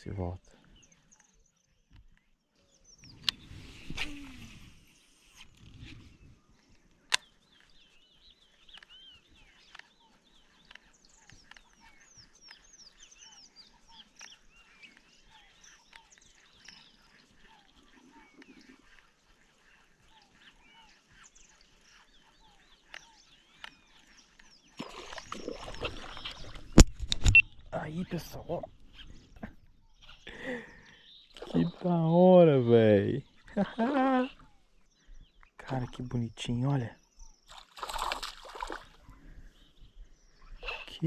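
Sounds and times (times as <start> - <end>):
birds chirping and whistling: 0.1 - 41.0
sharp click: 26.8 - 27.5.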